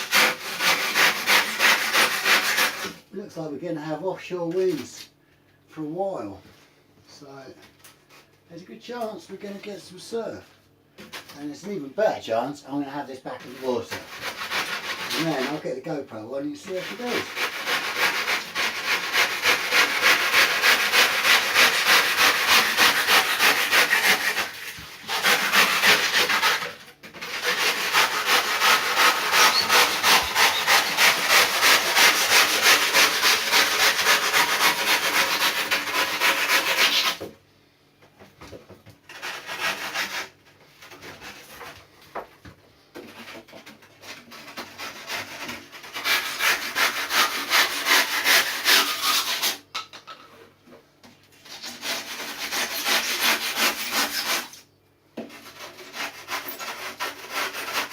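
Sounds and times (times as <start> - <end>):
hand saw cutting through foam: 0.0 - 3.0, 13.4 - 15.8, 16.6 - 37.3, 39.1 - 41.8, 43.0 - 49.7, 51.4 - 54.6, 55.2 - 57.9.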